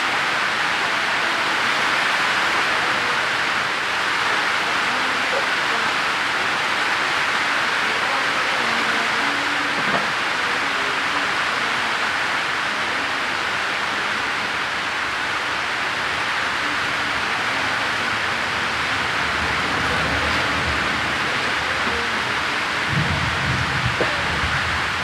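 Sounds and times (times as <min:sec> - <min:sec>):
heavy rain pouring: 0:00.0 - 0:25.0
low rumble: 0:22.6 - 0:25.0.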